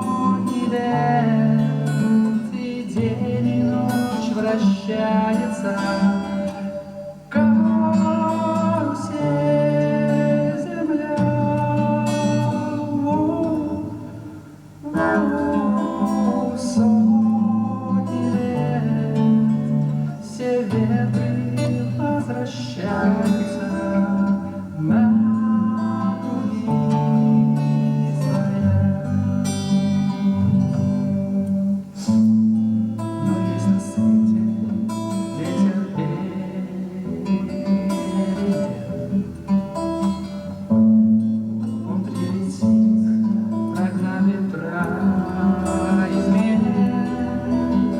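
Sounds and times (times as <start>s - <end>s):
acoustic guitar strumming chords: 0.0s - 47.9s.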